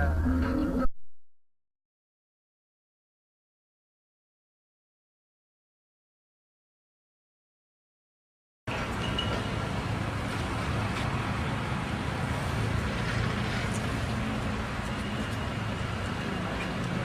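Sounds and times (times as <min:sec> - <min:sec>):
road and traffic noise: 0:08.7 - 0:17.0
vehicle engine hum: 0:08.7 - 0:17.0.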